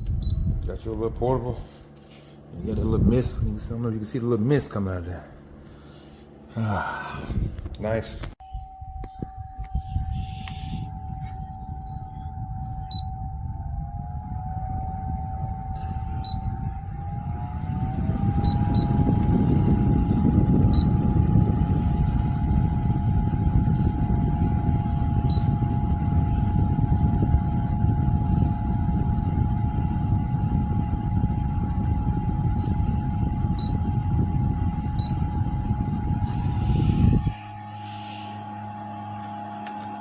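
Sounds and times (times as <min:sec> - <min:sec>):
fan motor whine: 0:00.0 - 0:40.0
rush of blown air: 0:05.8 - 0:07.6, 0:34.2 - 0:40.0.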